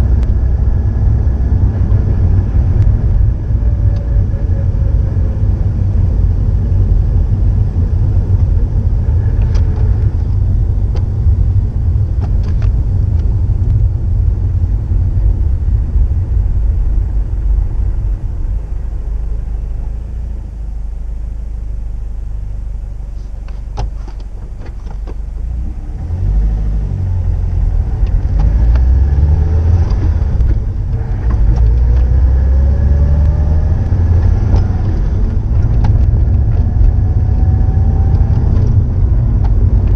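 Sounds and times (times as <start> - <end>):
car engine deep rumble: 0.0 - 39.9.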